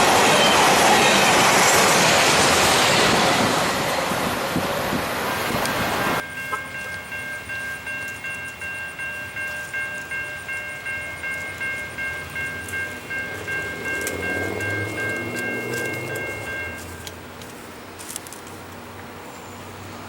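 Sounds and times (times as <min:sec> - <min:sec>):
locomotive engine rumble: 0:00.0 - 0:19.7
railroad crossing bell ringing: 0:06.2 - 0:17.9.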